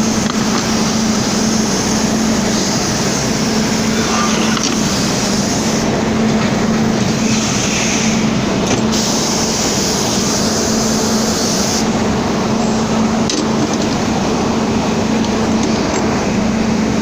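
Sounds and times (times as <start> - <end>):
milling machine cutting metal: 0.0 - 5.9.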